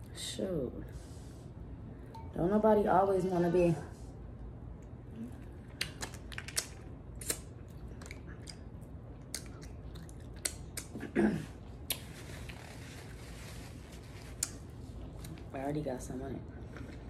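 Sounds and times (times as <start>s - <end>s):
wet chewing clicks and smacks: 5.4s - 11.0s.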